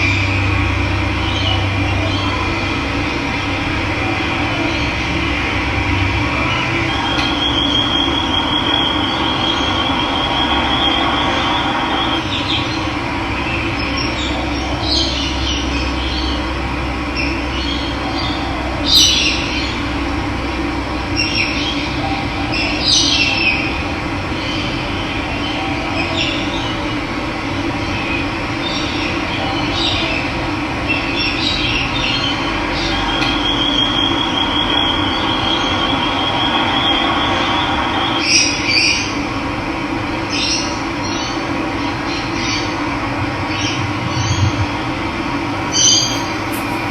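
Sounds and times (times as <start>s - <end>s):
birds chirping: 45.6s - 46.9s.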